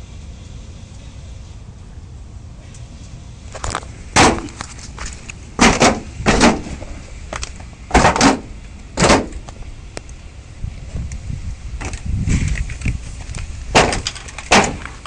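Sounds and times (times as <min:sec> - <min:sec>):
loud sharp knocks: 0:04.2 - 0:04.5, 0:05.6 - 0:06.8, 0:07.9 - 0:09.4, 0:13.7 - 0:14.9.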